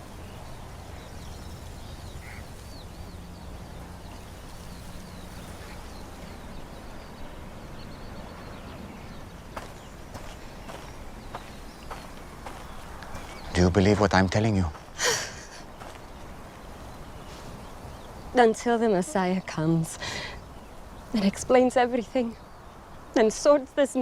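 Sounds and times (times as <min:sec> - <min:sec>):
small birds chirping faintly: 0:00.0 - 0:24.0.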